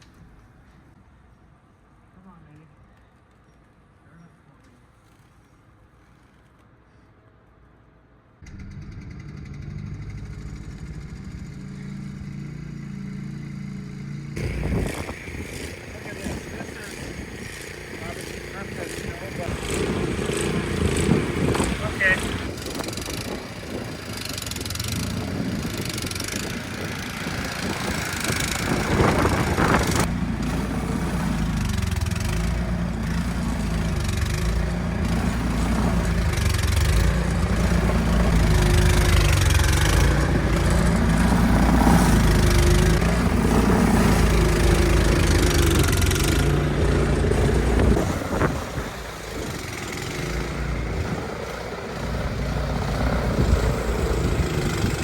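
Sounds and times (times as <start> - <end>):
engine running under load: 8.4 - 55.0
steady rushing noise: 14.4 - 55.0.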